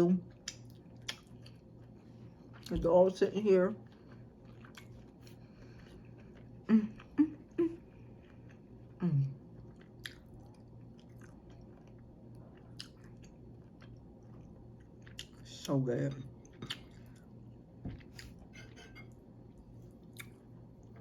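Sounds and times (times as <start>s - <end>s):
close chewing: 3.8s - 7.2s, 8.1s - 15.5s.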